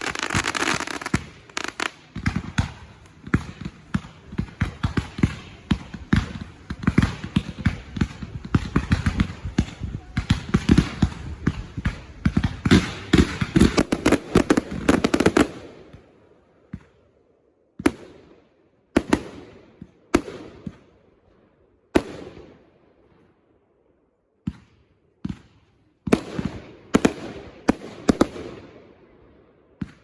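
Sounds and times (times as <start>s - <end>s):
loud firework bangs echoing: 0.0s - 16.9s
fireworks bangs and crackle: 0.0s - 23.4s, 24.4s - 30.0s.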